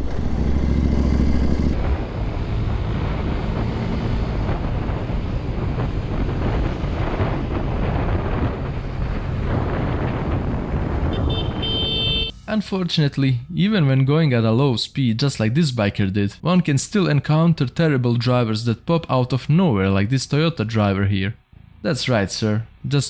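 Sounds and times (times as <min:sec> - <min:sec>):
wind buffeting microphone: 0:00.0 - 0:11.8
motorcycle and road noise: 0:00.0 - 0:12.4.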